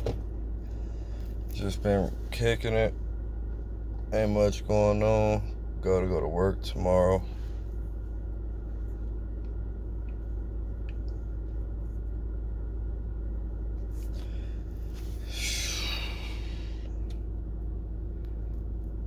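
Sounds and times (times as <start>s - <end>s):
car cabin rumble and hum: 0.0s - 19.0s
person blowing out smoke: 15.2s - 16.7s.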